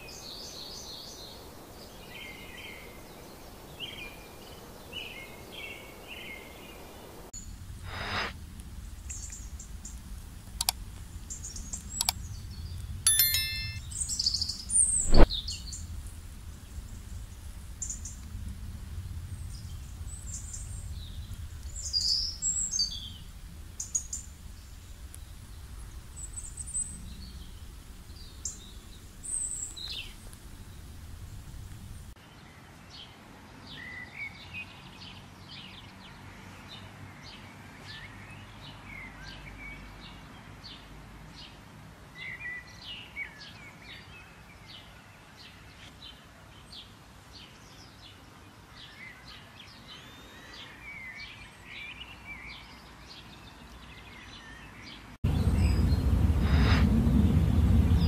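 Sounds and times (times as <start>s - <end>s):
low background rumble: 6.9s - 13.1s, 13.8s - 32.2s, 55.2s - 58.0s
quick chirps and trills: 13.0s - 14.0s.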